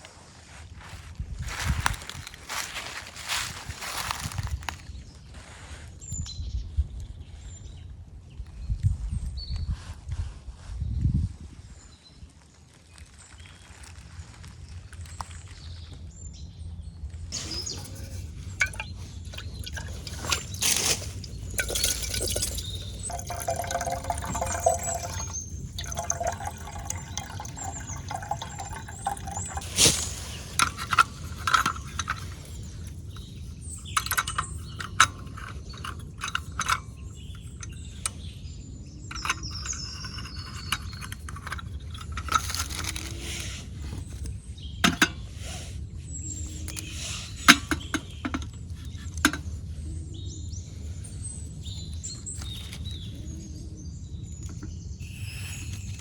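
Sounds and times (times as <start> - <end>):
liquid pouring and splashing: 17.4 - 38.0
vessels clinking and knocking: 17.4 - 45.4, 46.7 - 49.7.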